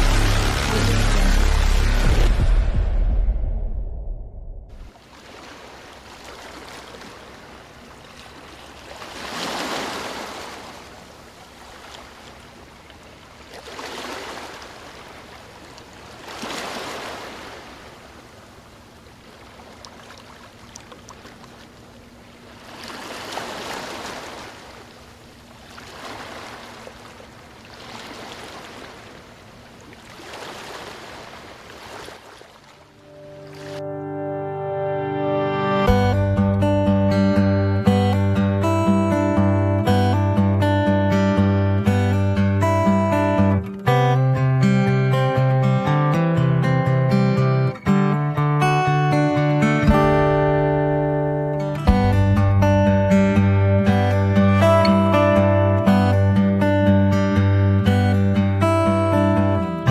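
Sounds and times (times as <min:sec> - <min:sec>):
sea water rushing: 0:00.0 - 0:02.8, 0:04.7 - 0:34.0.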